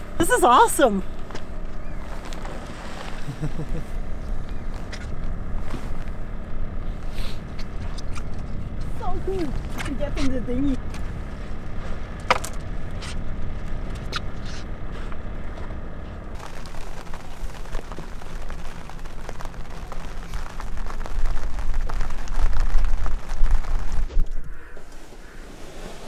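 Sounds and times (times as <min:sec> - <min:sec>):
boat engine running: 0:00.0 - 0:22.8
wind rumble on microphone: 0:00.0 - 0:26.0
rain pattering on water: 0:16.3 - 0:25.1.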